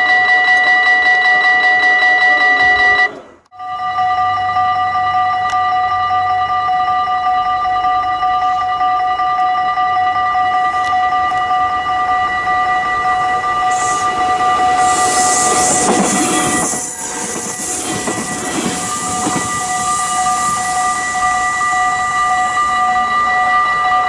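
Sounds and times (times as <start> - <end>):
level-crossing alarm ringing: 0.0 - 24.0
train passing at speed: 11.6 - 24.0.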